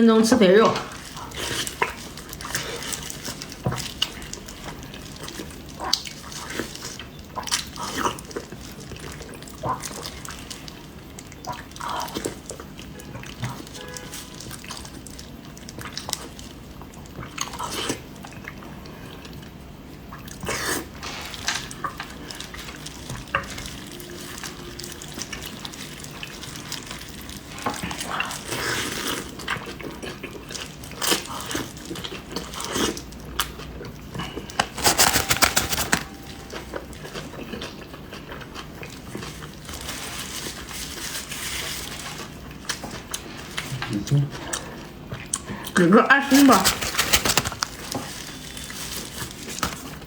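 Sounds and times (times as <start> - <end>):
biting and chewing: 34.2 - 40.2, 46.3 - 50.0.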